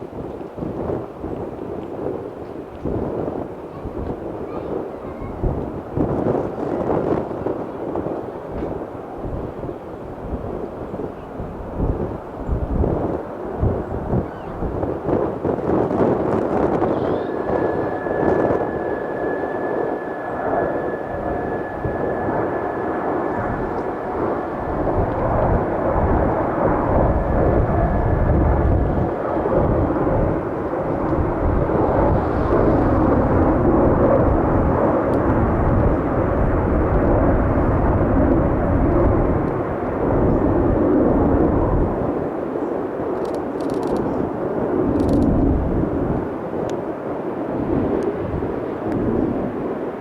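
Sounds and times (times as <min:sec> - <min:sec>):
jet engines rumbling: 0:00.0 - 0:50.0
thin high jet whine: 0:14.6 - 0:41.6.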